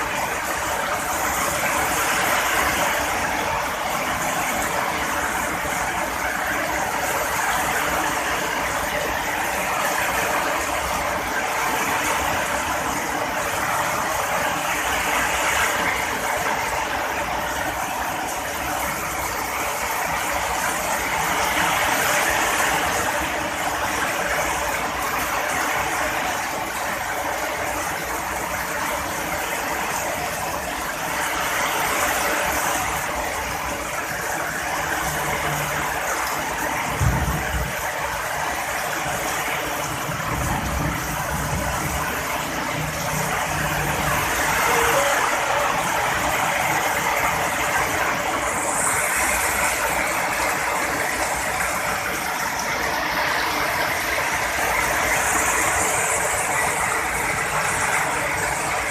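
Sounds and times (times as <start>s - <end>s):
heavy rain pouring: 0.0s - 58.9s
thunder clap and rumbling: 36.8s - 48.4s.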